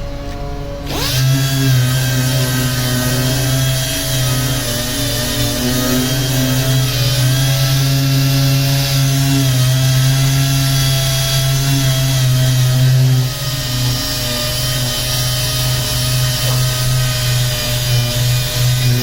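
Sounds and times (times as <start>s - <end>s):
power sander running: 0.7s - 19.0s.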